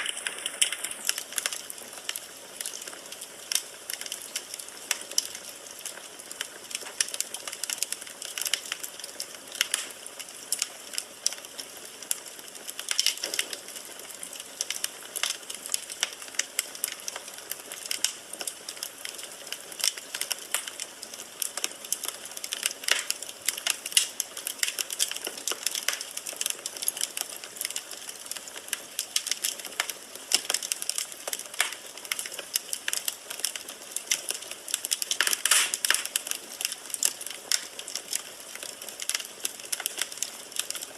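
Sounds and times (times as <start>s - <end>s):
soft hiss of flame: 0.0s - 5.4s, 35.1s - 37.0s
firewood crackling and popping: 0.0s - 40.9s.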